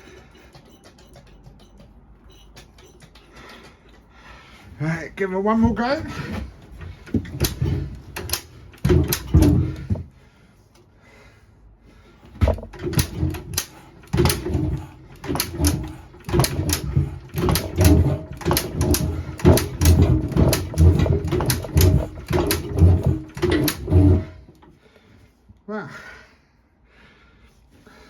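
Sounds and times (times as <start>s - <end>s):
engine being cranked over: 6.1s - 10.1s, 12.3s - 24.7s
engine firing: 12.4s - 24.5s.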